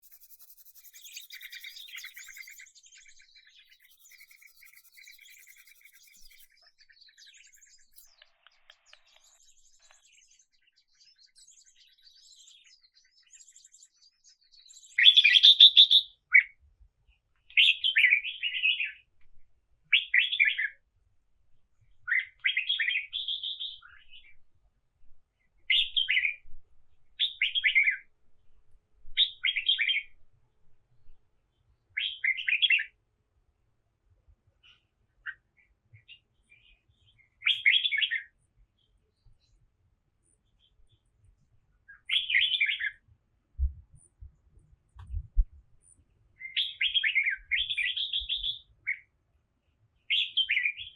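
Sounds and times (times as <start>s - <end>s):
birds chirping and trilling: 0.0s - 15.0s, 46.4s - 48.6s
bird singing loud phrases: 0.0s - 16.1s, 36.1s - 38.9s, 41.9s - 43.0s, 46.4s - 49.1s, 50.1s - 50.9s.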